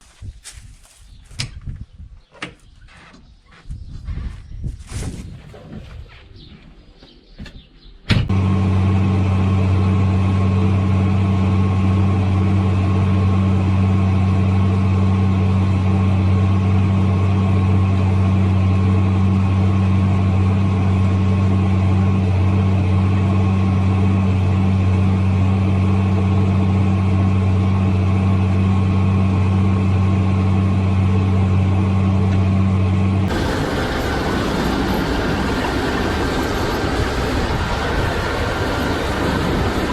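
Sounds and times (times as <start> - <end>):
tractor engine droning: 8.1 - 39.9.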